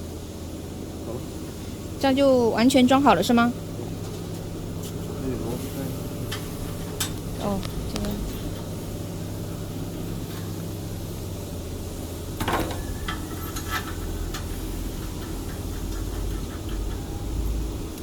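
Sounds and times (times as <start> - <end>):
low machinery hum: 0.0 - 18.0
metal parts clicking and knocking: 12.4 - 16.3.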